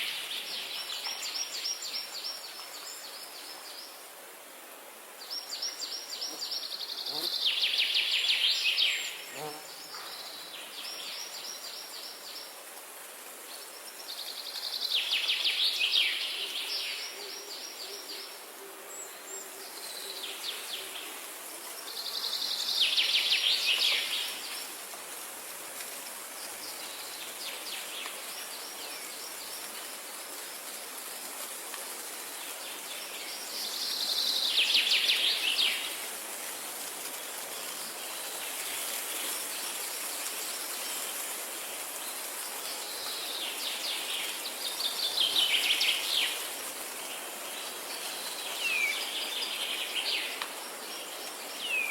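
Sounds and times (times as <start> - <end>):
steady background hiss: 0.0 - 51.9
songbirds singing: 5.2 - 12.5.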